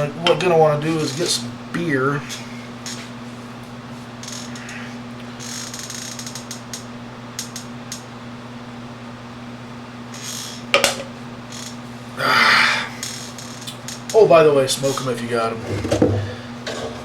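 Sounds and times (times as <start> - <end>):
bottle handling and creaking: 15.6 - 17.0.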